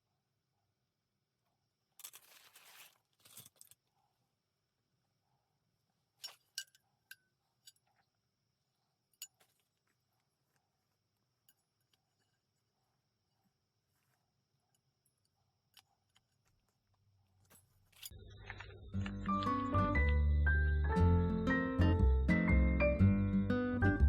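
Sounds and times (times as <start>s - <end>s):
small sharp clicks and clinks: 6.2s - 8.2s.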